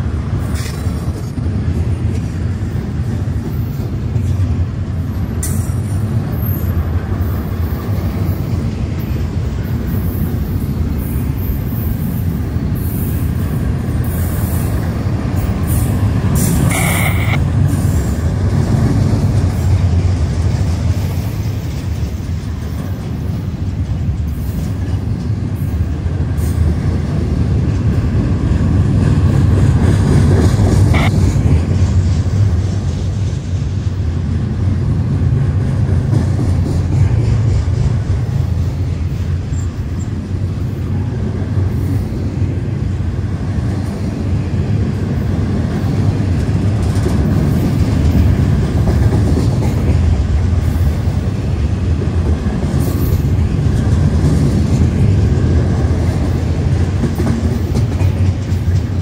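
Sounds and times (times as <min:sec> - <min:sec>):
freight train wheels rumbling: 0:00.0 - 0:59.0
high wheel squeal: 0:16.7 - 0:17.4.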